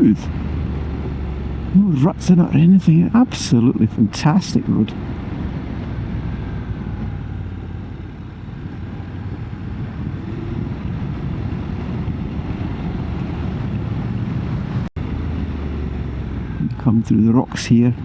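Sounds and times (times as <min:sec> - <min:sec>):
wind and road noise: 0:00.0 - 0:18.0.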